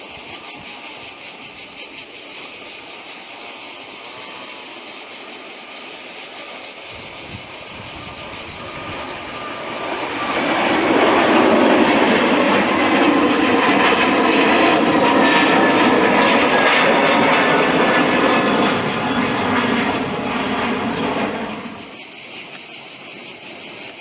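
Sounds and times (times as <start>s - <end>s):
jet engine whine: 3.0s - 23.8s
aircraft rumble: 6.9s - 22.0s.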